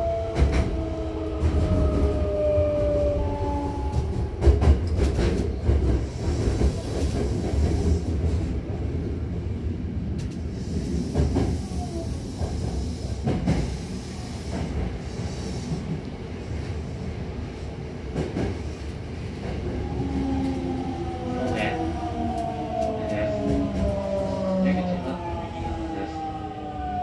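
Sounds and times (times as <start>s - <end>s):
train wheels rumbling: 0.0s - 9.2s, 10.0s - 26.9s
rail joint clacks: 3.8s - 8.0s.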